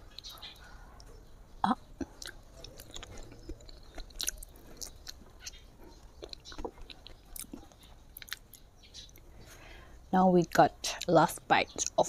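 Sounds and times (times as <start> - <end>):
person chewing food: 0.0 - 1.2, 1.9 - 9.8.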